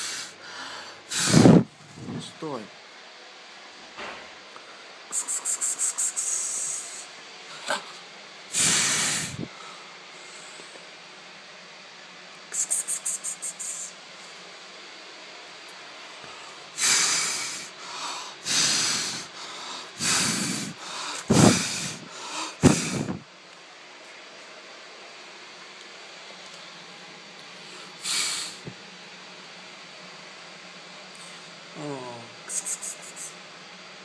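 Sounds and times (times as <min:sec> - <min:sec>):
gusts of rushing air: 0:01.1 - 0:02.3, 0:08.6 - 0:09.5, 0:20.0 - 0:23.3.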